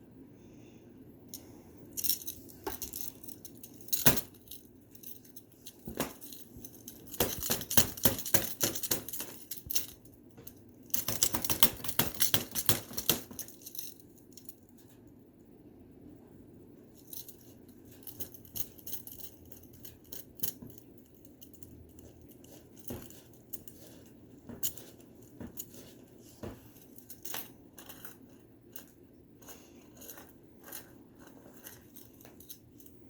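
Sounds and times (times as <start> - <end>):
crinkle tube rustling: 20.5 - 32.9.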